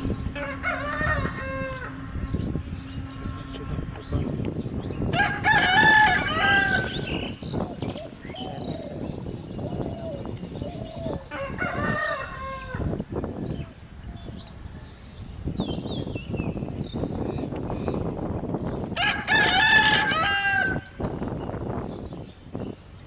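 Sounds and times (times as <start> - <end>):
bird calls: 0.0 - 11.4
steady low rumble: 0.0 - 20.2.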